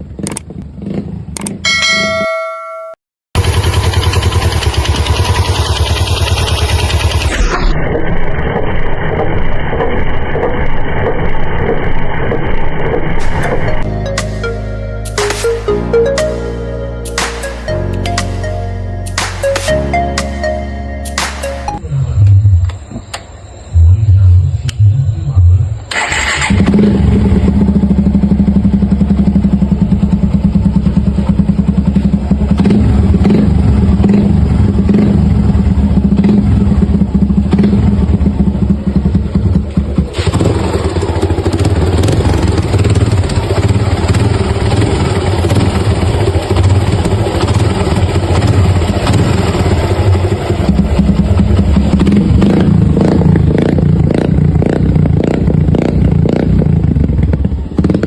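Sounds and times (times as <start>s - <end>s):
motorcycle engine knocking clatter: 3.4s - 7.3s, 9.1s - 13.2s, 27.5s - 58.0s.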